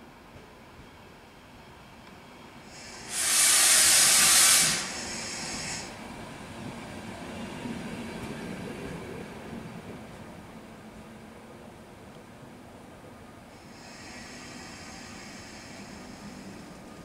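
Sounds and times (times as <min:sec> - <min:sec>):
compressed air hissing: 0:02.7 - 0:06.0, 0:13.6 - 0:17.0.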